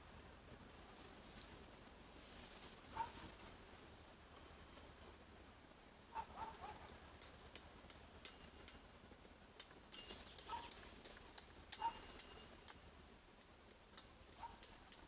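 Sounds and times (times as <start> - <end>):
light ticks: 9.6 - 15.0.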